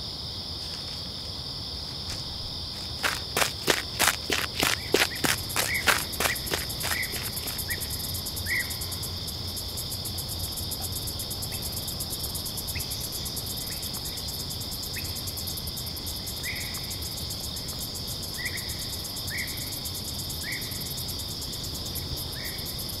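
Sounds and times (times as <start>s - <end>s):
cricket chirps: 0.0s - 23.0s
crickets trilling: 0.0s - 23.0s
quick thuds: 2.1s - 7.8s.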